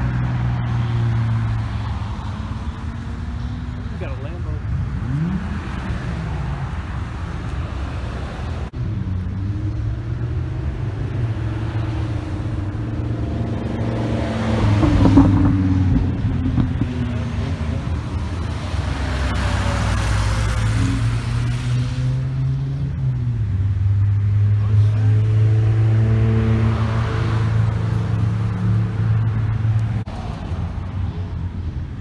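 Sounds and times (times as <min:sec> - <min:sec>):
car engines driving past: 0:00.0 - 0:32.0.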